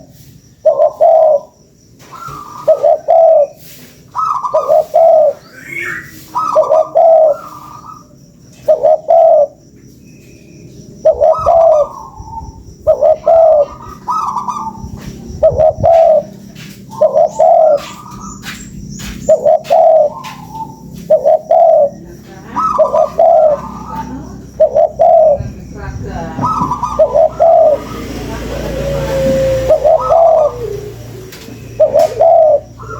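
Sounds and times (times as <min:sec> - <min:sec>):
dove cooing: 0:00.0 - 0:09.7, 0:11.0 - 0:32.9.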